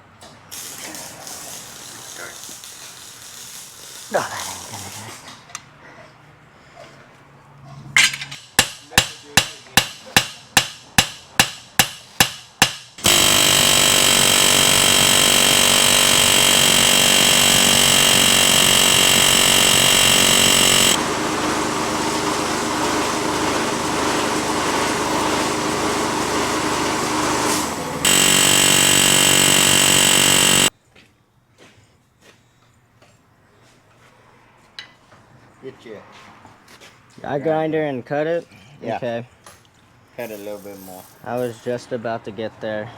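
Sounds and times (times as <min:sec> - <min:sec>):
loud power tool running: 0:13.0 - 0:30.7.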